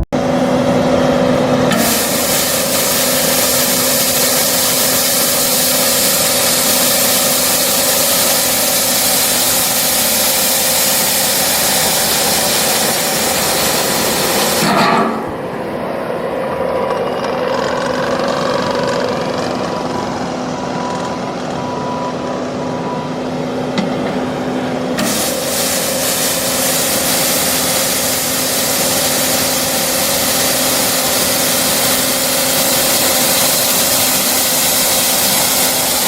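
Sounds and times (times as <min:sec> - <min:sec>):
skid steer engine running: 0:00.0 - 0:36.0
rotating broom scraping ground: 0:01.7 - 0:15.6.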